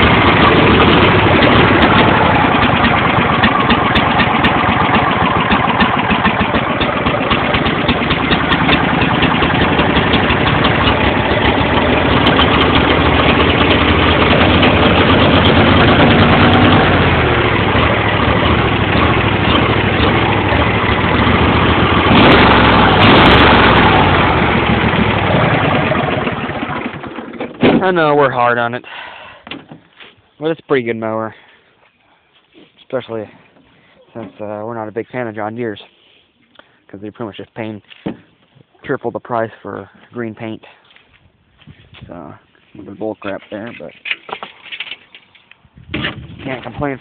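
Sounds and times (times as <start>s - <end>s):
riding mower engine running: 0.0s - 29.8s, 42.9s - 47.0s.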